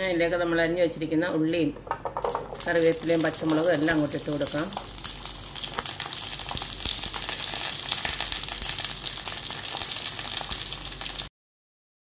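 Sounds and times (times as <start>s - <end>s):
pieces landing in a pan: 2.1s - 8.9s
vegetables sizzling in hot oil: 2.2s - 11.3s.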